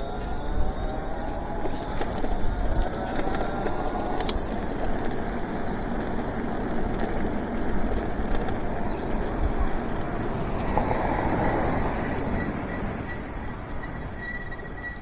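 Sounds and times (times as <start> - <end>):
wind on microphone: 0.0 - 6.4
faint motor whine: 0.0 - 15.0
tyre noise on wet road: 0.0 - 15.0.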